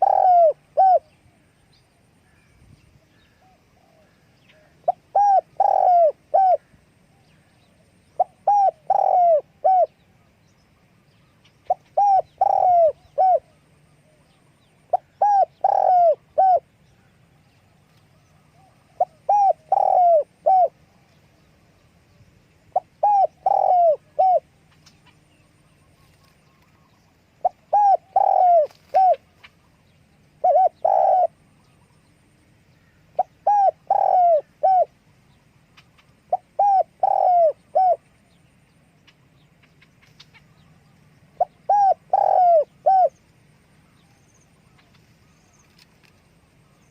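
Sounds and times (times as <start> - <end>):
dove cooing: 0.0 - 1.3, 3.2 - 10.1, 11.4 - 17.1, 17.7 - 21.1, 22.6 - 32.2, 32.8 - 35.0, 35.7 - 38.3, 39.0 - 43.2.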